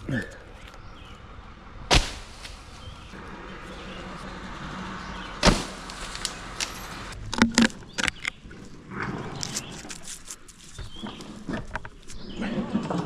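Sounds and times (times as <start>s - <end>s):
wood pieces thudding on ground: 5.4s - 8.4s.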